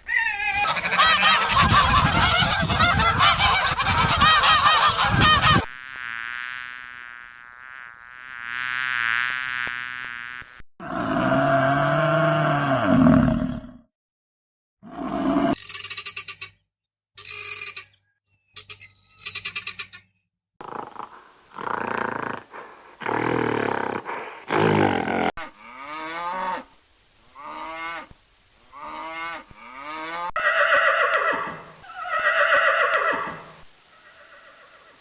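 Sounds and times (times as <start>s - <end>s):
animal calls falling in pitch: 0.0s - 0.7s
long loud animal calls: 28.7s - 35.0s.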